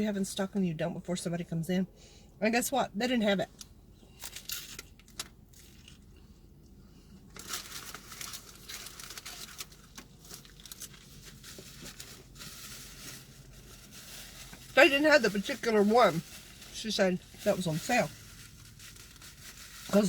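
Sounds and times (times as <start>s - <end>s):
crunchy taco crackling: 4.2s - 12.4s.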